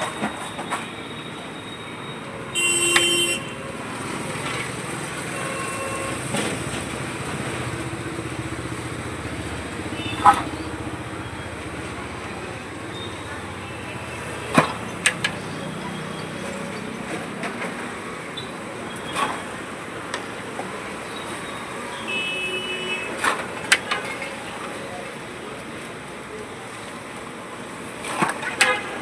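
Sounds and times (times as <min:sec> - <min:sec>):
sharp clicks and knocks: 0:14.5 - 0:15.5.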